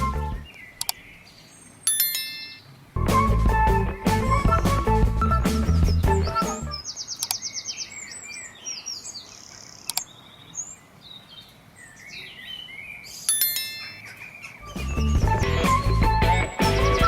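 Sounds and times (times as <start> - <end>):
birds chirping and calling: 0.0 - 2.7, 5.6 - 17.0
faint outdoor background noise: 0.0 - 17.0
rapid bird trill: 5.4 - 17.0.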